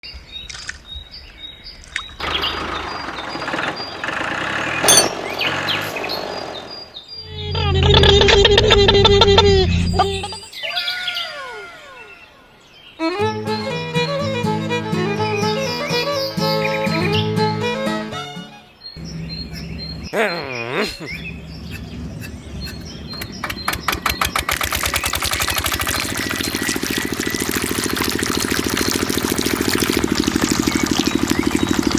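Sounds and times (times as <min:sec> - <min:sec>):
small diesel engine running: 0:02.2 - 0:06.7, 0:21.2 - 0:31.9
birds chirping faintly: 0:18.6 - 0:29.0.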